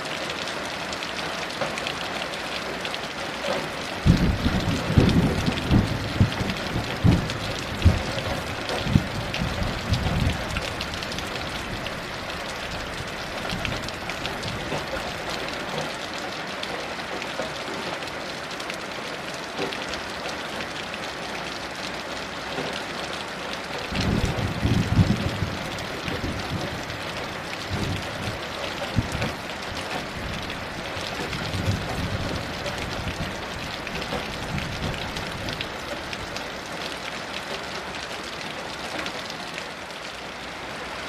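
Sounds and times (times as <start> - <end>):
heavy rain: 0.0 - 41.0
distant thunder rumbling: 4.0 - 11.8, 23.9 - 35.6.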